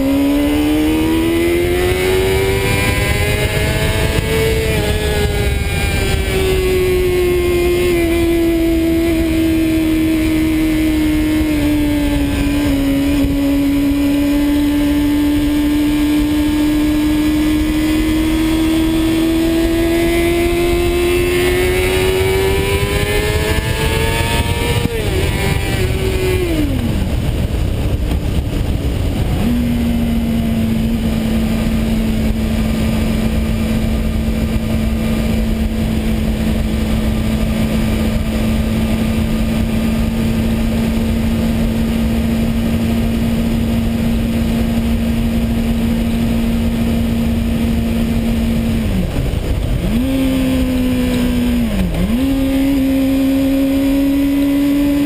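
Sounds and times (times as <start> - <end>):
motorcycle engine revving: 0.0 - 55.0
wind rushing over microphone: 0.0 - 55.0.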